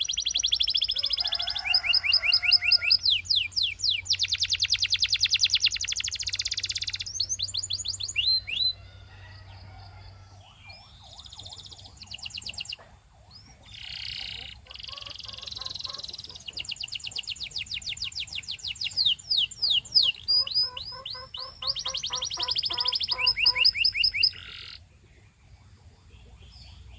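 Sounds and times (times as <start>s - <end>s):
canary singing trills: 0.0s - 26.9s.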